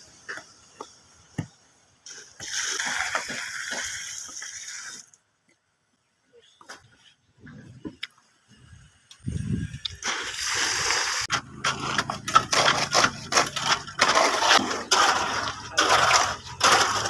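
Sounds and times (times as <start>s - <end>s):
concrete mixer drum churning: 10.8s - 17.0s.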